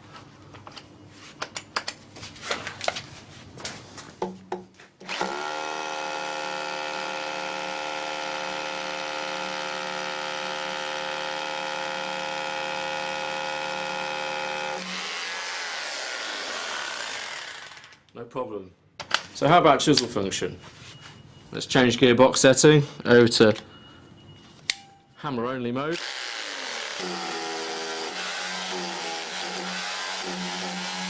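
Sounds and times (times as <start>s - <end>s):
tool handling clicks and knocks: 0.2s - 3.0s, 19.0s - 19.4s
rotary hammer drilling: 5.0s - 18.0s, 25.9s - 31.0s.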